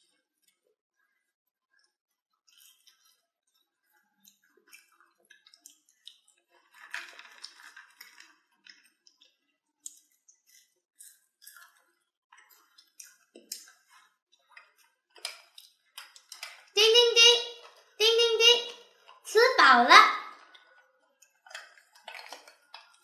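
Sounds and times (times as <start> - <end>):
children crunching fries: 2.4 - 16.8, 20.2 - 23.0.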